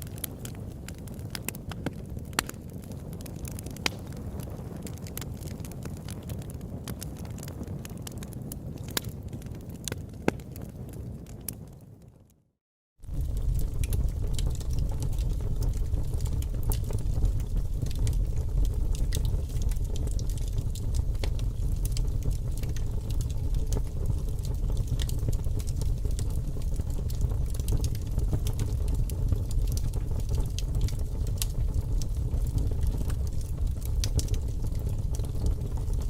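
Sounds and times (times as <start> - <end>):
fire crackling and popping: 0.0 - 12.4, 13.0 - 36.0
low rumble of fire: 0.0 - 36.0.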